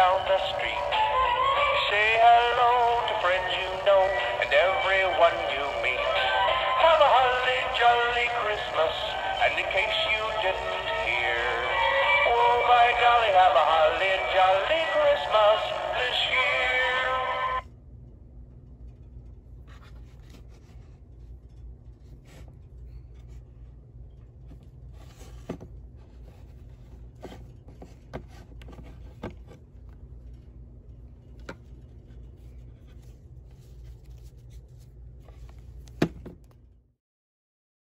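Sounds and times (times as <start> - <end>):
person singing: 0.0 - 17.6
faint low hum: 0.0 - 36.9.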